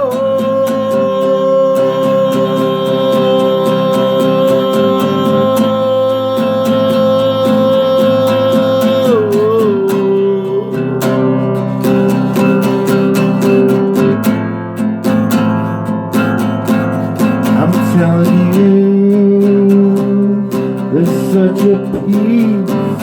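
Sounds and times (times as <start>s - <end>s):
person singing long note: 0.0s - 11.0s
strummed acoustic guitar: 0.0s - 23.0s.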